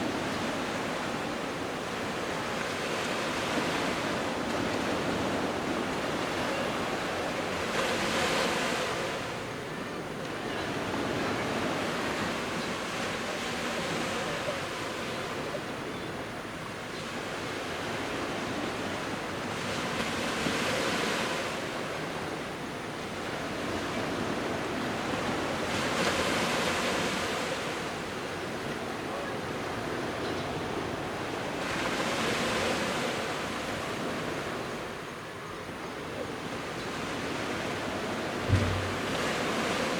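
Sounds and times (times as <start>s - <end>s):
sea waves breaking on shore: 36.3s - 39.9s
wind on microphone: 38.4s - 39.9s.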